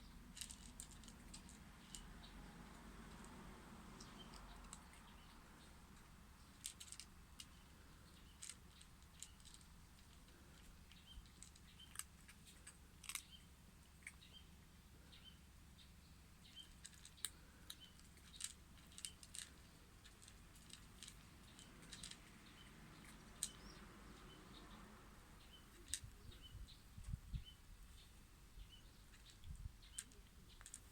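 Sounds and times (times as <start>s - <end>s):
pet crunching dry food: 0.2s - 14.4s, 16.5s - 24.7s, 29.1s - 30.9s.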